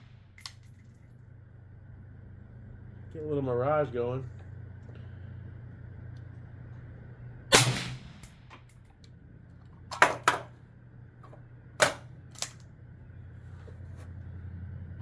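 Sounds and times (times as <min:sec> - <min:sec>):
suppressed rifle shots: 0:07.5 - 0:08.4.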